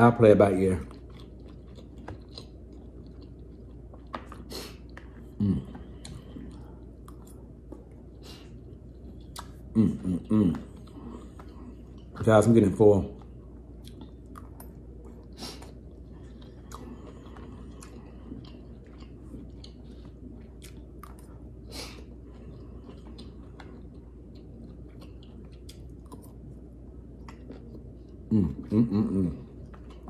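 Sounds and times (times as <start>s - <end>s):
low steady hum: 0.0s - 30.0s
person chewing broccoli: 0.4s - 30.0s
mouth clicks and smacks: 9.2s - 9.7s.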